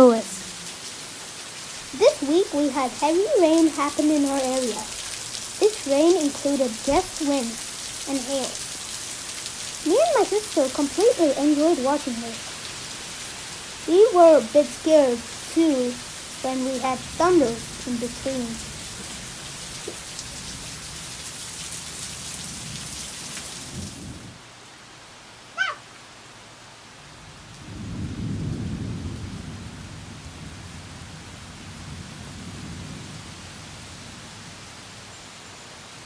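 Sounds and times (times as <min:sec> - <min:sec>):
heavy rain hissing: 0:00.0 - 0:25.1
thunder rumbling: 0:13.8 - 0:21.1, 0:27.4 - 0:34.5.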